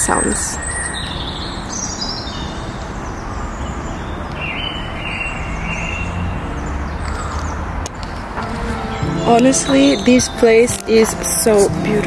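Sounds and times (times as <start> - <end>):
bird calling high note: 8.4 - 12.0.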